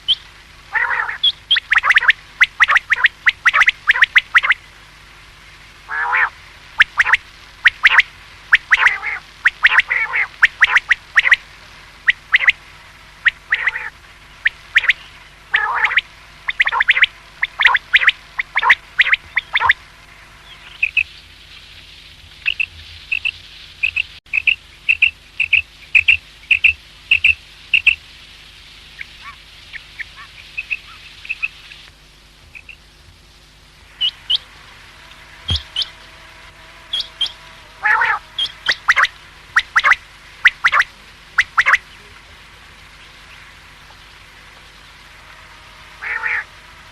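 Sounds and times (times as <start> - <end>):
quail calling: 0.0 - 4.6, 5.9 - 19.8, 20.4 - 21.2, 22.4 - 28.0, 29.0 - 31.8, 35.1 - 36.1, 36.8 - 42.1, 45.9 - 46.9.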